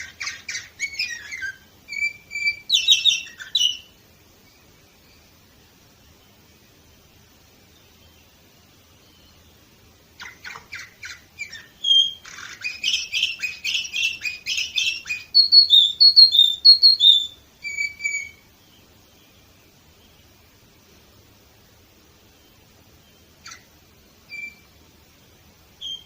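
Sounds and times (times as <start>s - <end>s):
canary singing: 0.0s - 4.0s, 10.2s - 18.9s, 23.0s - 24.8s, 25.7s - 26.0s.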